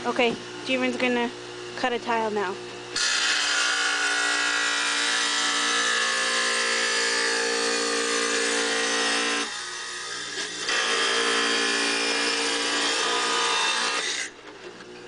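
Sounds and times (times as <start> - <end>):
tile saw cutting tile: 3.0 - 14.4.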